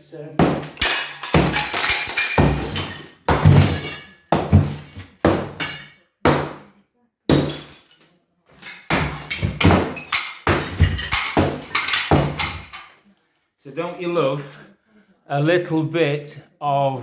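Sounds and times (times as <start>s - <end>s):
broken brick clattering: 0.4s - 6.7s, 7.3s - 8.0s, 8.6s - 13.0s
hammer striking brick: 0.4s - 6.7s, 7.3s - 7.8s, 8.9s - 12.7s.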